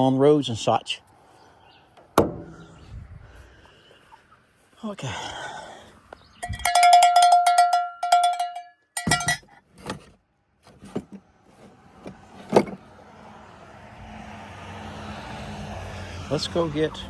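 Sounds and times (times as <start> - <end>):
metal ring clanging: 6.4 - 10.0.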